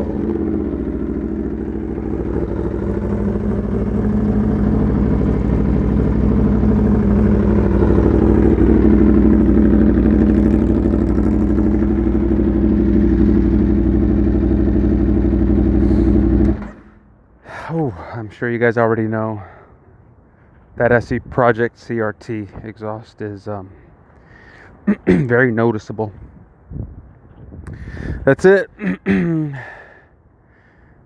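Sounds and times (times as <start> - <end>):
motorcycle engine idling: 0.0 - 17.4.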